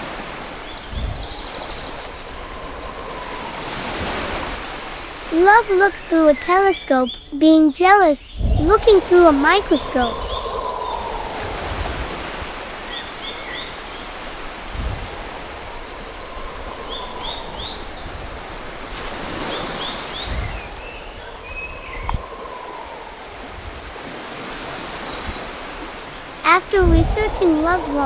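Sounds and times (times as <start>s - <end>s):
flowing water rushing: 0.0s - 7.0s, 8.4s - 28.0s
bird chirps: 6.0s - 12.2s, 15.6s - 23.2s.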